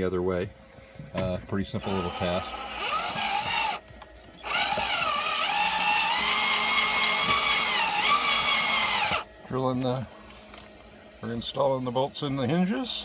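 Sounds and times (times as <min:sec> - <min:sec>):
electric drill whining: 0:01.8 - 0:03.8, 0:04.4 - 0:09.3.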